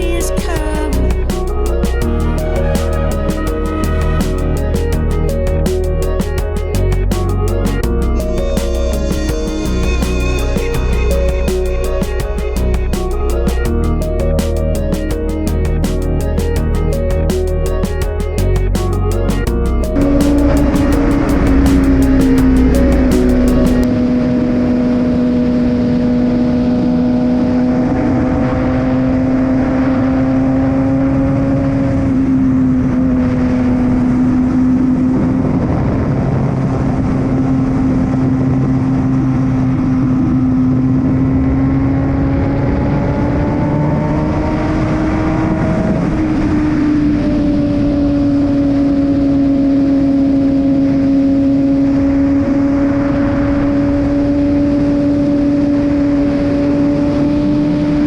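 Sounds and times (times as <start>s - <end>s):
motorcycle engine running: 0.0s - 26.9s
wind rushing over microphone: 0.0s - 58.0s.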